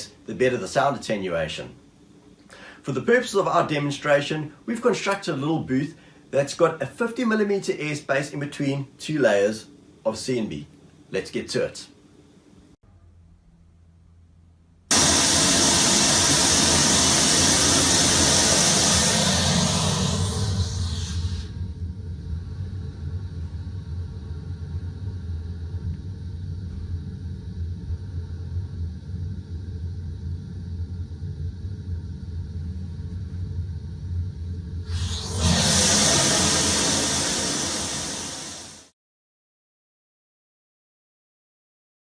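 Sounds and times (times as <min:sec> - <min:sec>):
white noise hiss from loudspeaker: 0:00.0 - 0:12.2
bright white noise hiss: 0:00.0 - 0:12.8, 0:14.9 - 0:38.9
muffled white noise rumble: 0:21.4 - 0:34.9.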